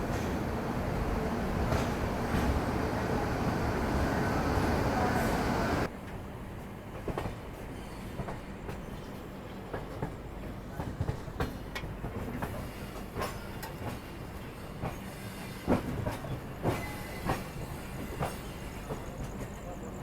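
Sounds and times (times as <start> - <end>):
wheels clicking over rail joints: 0.0 - 5.9
train coach rumbling on track: 0.0 - 20.0.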